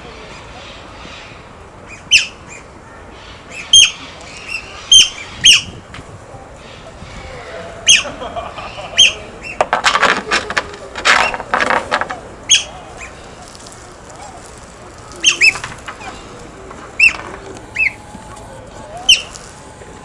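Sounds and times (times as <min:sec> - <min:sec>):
noisy scuffling: 0:09.2 - 0:20.0
otters squeaking chirps: 0:11.0 - 0:19.7.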